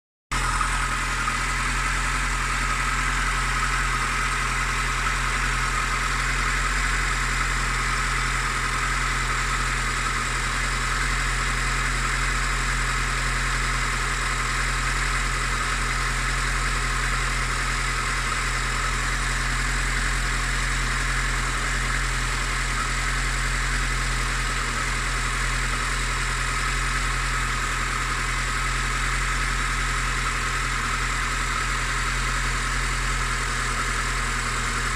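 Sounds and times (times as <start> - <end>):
engine idling with knocking: 0.3 - 34.9.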